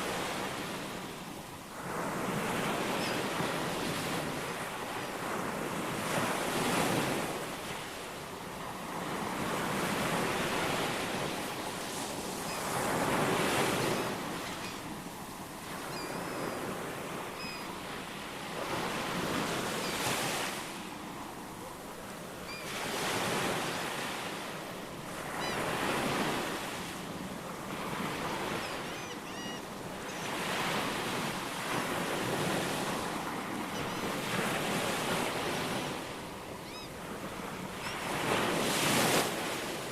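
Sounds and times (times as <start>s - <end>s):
faint bird chirps: 17.3s - 17.8s, 28.6s - 30.3s.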